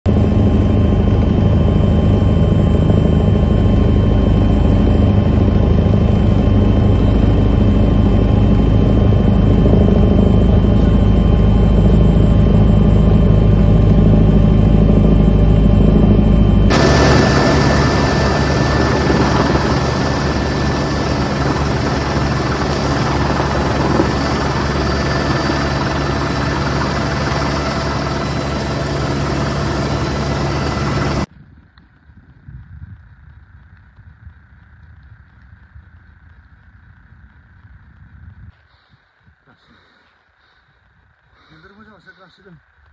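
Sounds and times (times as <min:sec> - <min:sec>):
helicopter rotor and engine drone: 0:00.1 - 0:31.3.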